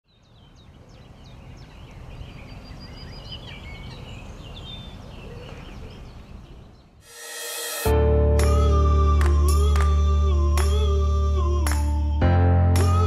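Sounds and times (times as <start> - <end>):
songbirds singing and chirping: 0.0 - 7.0.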